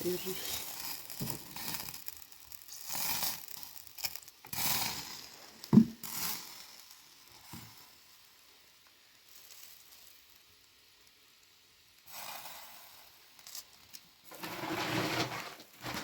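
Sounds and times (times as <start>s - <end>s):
rustling crunching handling noises: 14.3s - 16.0s.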